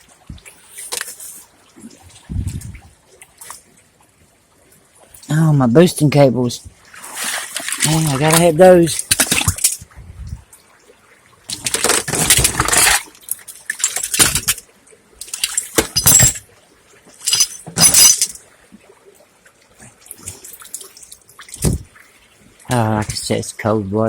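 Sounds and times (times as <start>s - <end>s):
person splashing through water: 6.9s - 9.8s.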